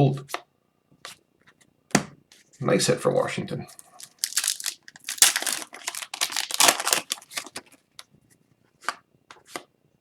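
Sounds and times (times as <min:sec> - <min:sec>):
wrapper crinkling and rustling: 0:03.8 - 0:07.9.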